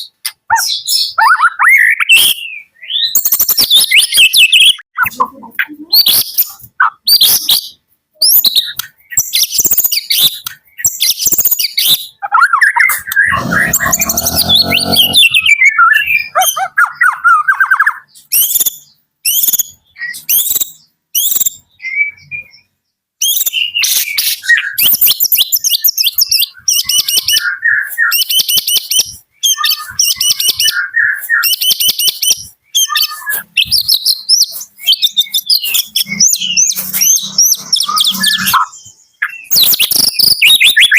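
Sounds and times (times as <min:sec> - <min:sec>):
harsh buzzy sound: 0:13.3 - 0:15.5
bird singing whistles and trills: 0:15.4 - 0:40.9.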